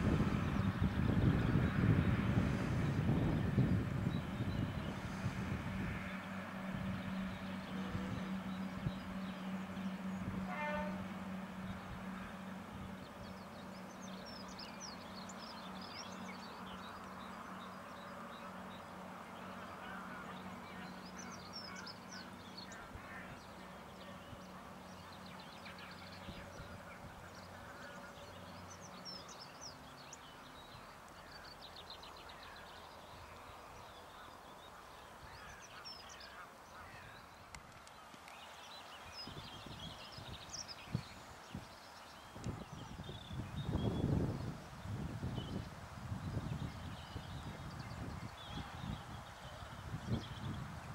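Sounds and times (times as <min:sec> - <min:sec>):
distant railcar engine drone: 0:00.0 - 0:38.2.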